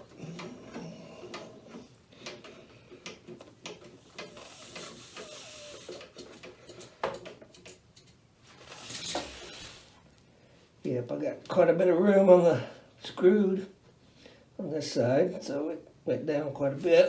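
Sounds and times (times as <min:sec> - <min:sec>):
soft hiss: 0:03.8 - 0:06.2, 0:08.4 - 0:11.1.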